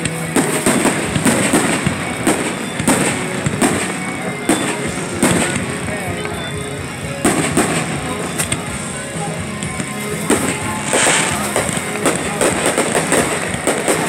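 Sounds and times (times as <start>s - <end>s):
fireworks bursting bangs: 0.0s - 14.0s.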